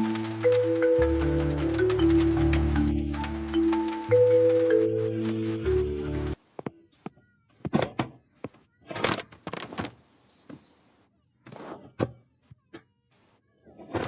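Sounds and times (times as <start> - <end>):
music: 0.0 - 6.4.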